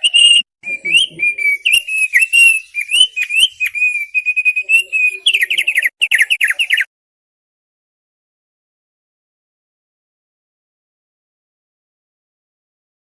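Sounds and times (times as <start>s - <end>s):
bird warbling song: 0.0s - 6.9s.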